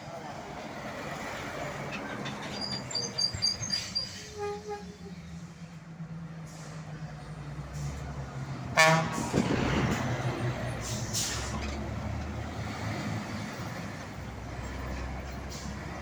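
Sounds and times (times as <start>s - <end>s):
truck horn toot: 8.8s - 9.5s.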